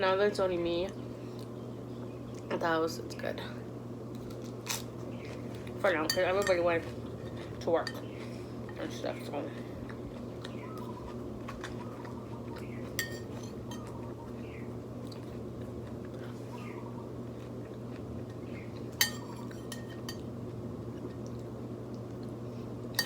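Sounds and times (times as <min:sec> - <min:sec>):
fan humming: 0:00.0 - 0:23.0
metal spoon clinking on plate: 0:13.0 - 0:13.9, 0:19.0 - 0:20.2.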